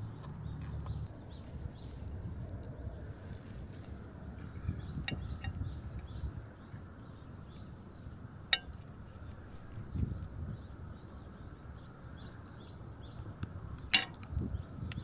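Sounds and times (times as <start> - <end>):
metal clinks: 13.9 - 14.2.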